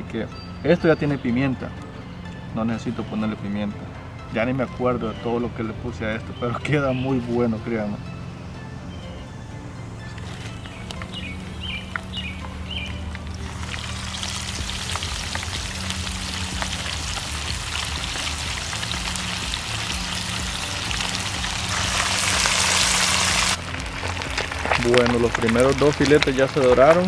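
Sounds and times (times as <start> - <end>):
fish frying in hot oil: 13.3 - 27.0.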